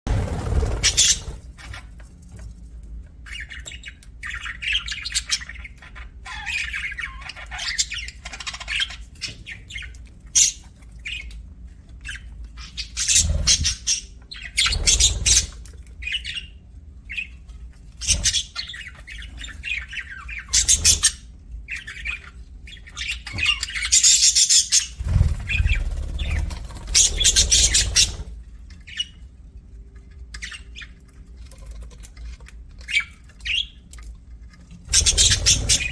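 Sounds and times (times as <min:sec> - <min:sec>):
budgerigars chirping and squawking: 0:00.1 - 0:02.0, 0:03.2 - 0:29.3, 0:30.3 - 0:33.9, 0:34.8 - 0:35.9
steady low hum: 0:24.9 - 0:30.2.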